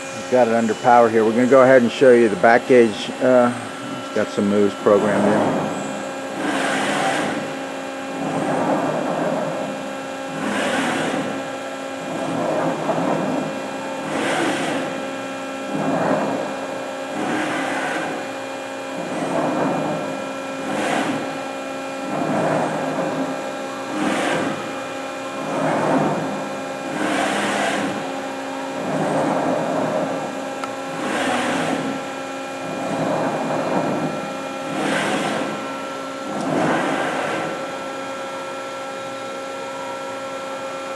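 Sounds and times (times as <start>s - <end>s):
machine axis drives whirring: 0.0s - 40.0s
hydraulic press hum: 0.0s - 40.9s.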